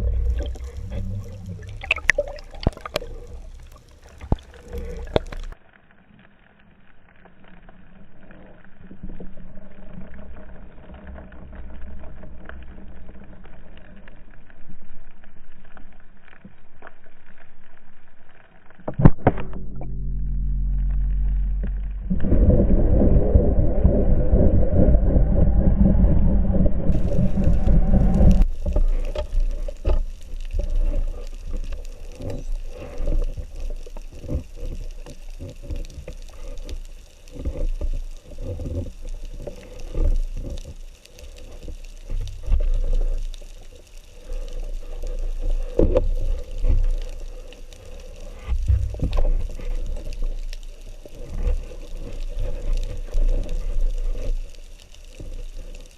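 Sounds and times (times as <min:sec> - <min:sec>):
low rush of sea water: 0:00.0 - 0:05.6, 0:21.2 - 0:55.9
water gurgling with clicks: 0:00.0 - 0:05.8, 0:06.9 - 0:55.9.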